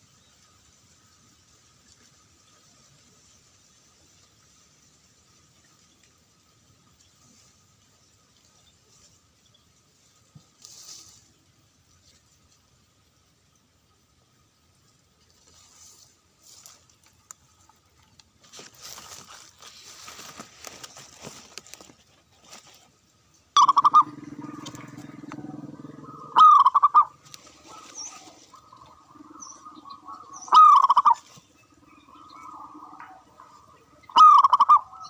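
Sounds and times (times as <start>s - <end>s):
soft rustling: 18.4s - 23.0s
dove cooing: 23.6s - 35.0s.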